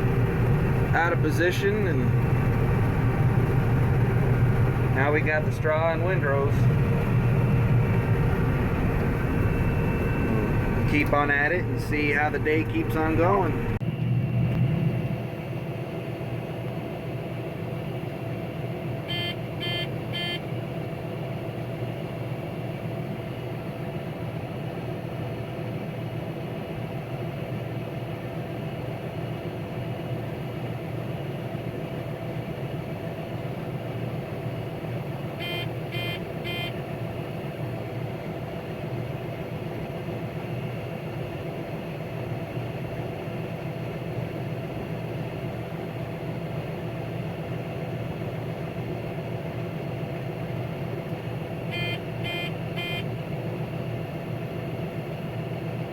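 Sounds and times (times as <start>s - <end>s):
combine harvester hum in cab: 0.0s - 55.9s
short electronic beeps: 19.1s - 20.4s, 35.4s - 36.8s, 51.7s - 53.0s.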